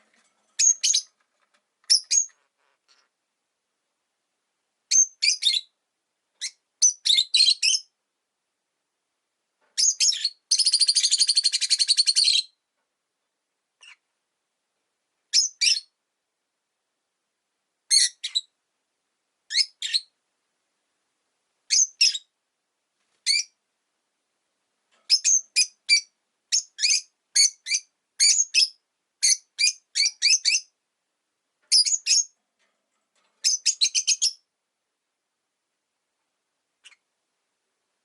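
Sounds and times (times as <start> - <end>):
lovebirds chirping: 0.0 - 1.2, 1.8 - 3.1, 4.9 - 5.8, 6.4 - 7.9, 9.8 - 12.6, 13.8 - 14.0, 21.7 - 22.3, 23.2 - 23.6, 25.1 - 30.8, 31.7 - 32.4, 33.4 - 34.5.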